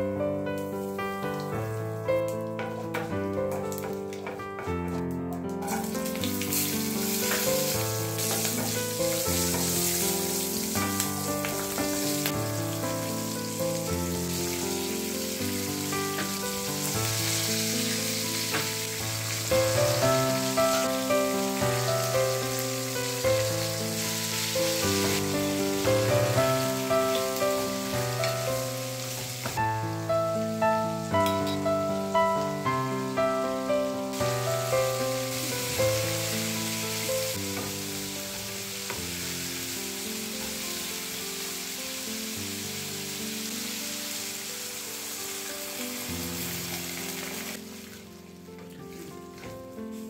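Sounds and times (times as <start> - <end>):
melodic background music: 0.0 - 40.0
vegetables sizzling in hot oil: 5.6 - 47.8.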